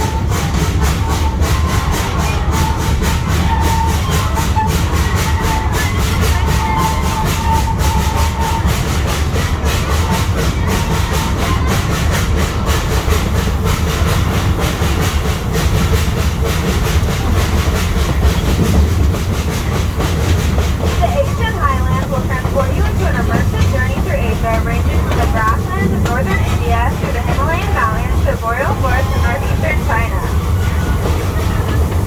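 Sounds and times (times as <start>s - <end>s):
high squeal from wheels: 0.0s - 9.0s
train rumbling: 0.0s - 32.0s
wheels clickety-clack: 0.0s - 32.0s.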